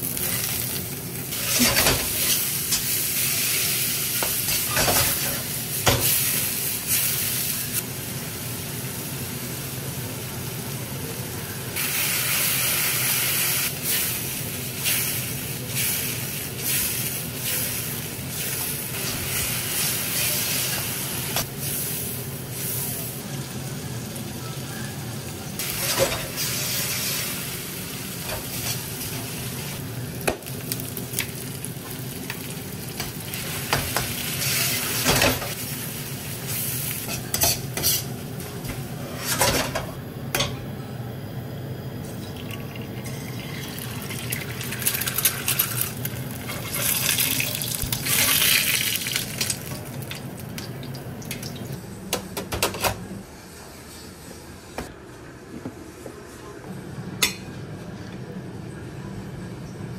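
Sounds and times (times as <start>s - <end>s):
meat sizzling in a wok: 0.0s - 38.5s, 43.1s - 51.7s
metal ladle scraping a pan: 37.1s - 38.1s
egg frying in a skillet: 43.3s - 51.6s.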